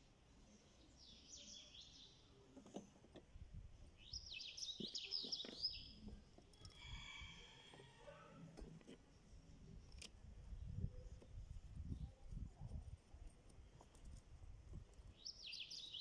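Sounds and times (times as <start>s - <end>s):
small birds chirping: 0.4s - 2.8s, 3.8s - 7.6s, 15.0s - 16.0s.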